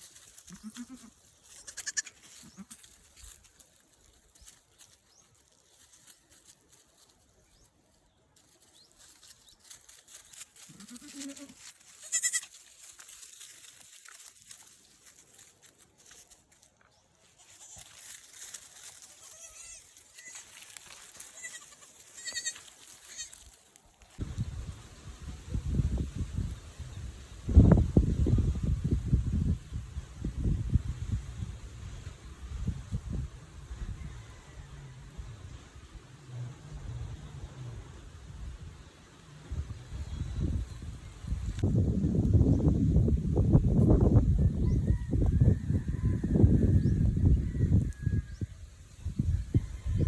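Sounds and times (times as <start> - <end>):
goats bleating: 0.5 - 2.9, 10.7 - 12.6, 19.1 - 20.6, 21.2 - 23.4.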